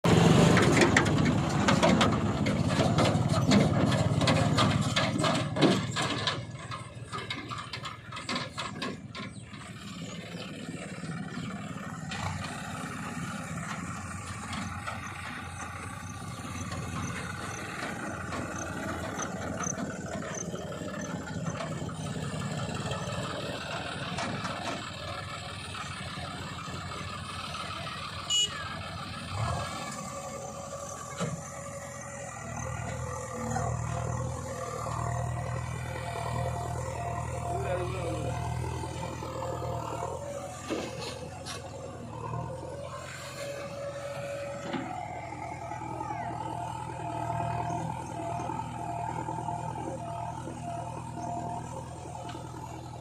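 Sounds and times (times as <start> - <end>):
diesel machinery engine running: 0.0 - 53.0
knocks and clatter: 0.2 - 10.6.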